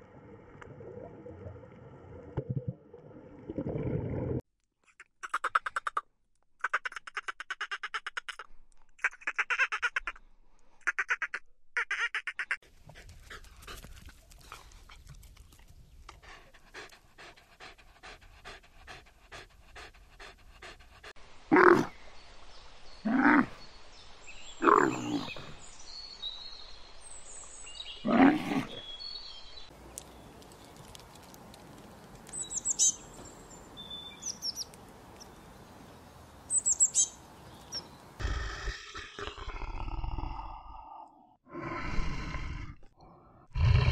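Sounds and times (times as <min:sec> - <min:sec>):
bird chirping: 0:32.3 - 0:38.2.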